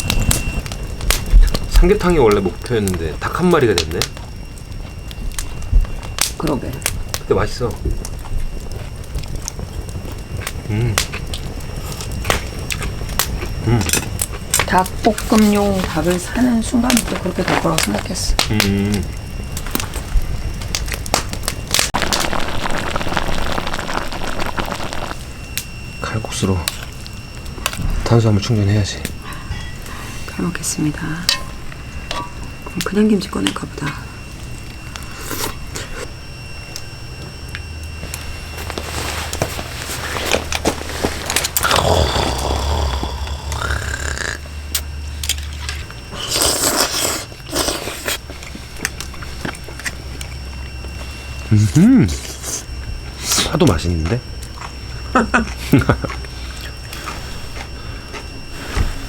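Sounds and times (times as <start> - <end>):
crackling hiss: 0.0 - 59.0
slurping noodles: 22.3 - 25.2, 46.2 - 48.2.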